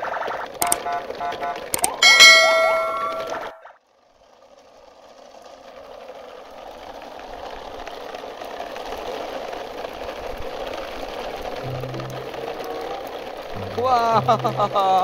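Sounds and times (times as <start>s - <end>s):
mechanical engine-like hum: 7.6s - 15.0s.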